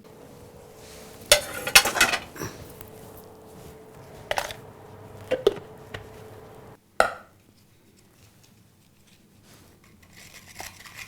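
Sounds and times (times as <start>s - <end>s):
faint steady hum: 0.0s - 6.8s
kitchen items knocking and clattering: 0.0s - 6.8s.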